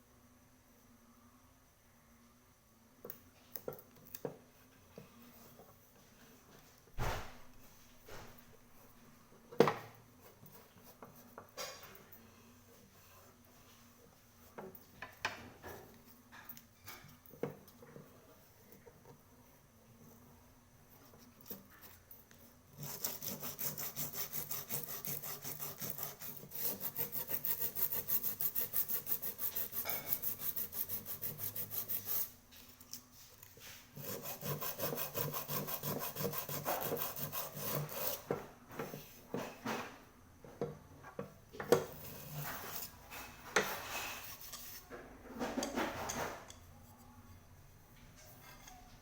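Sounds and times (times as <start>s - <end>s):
hand rasping on cooking pot: 22.8s - 32.3s, 34.0s - 38.3s.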